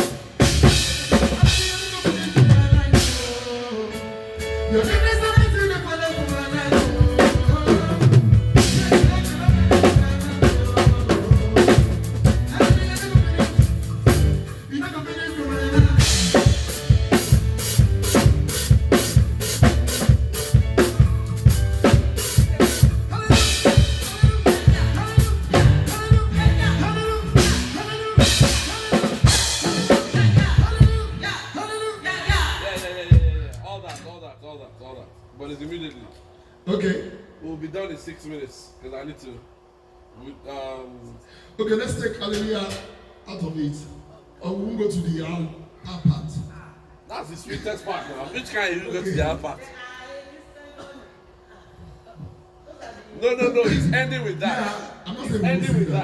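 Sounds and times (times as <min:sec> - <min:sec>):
cymbals: 0:00.0 - 0:31.3
live band playing: 0:00.0 - 0:33.7.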